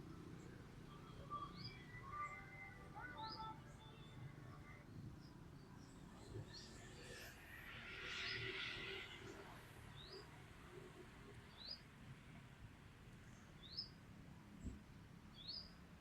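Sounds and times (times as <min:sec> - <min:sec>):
faint bird chirps: 0:00.3 - 0:07.2.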